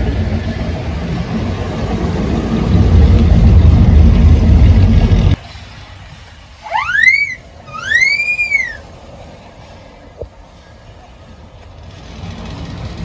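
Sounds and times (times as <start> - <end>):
two-note wolf whistle: 6.6 - 8.8.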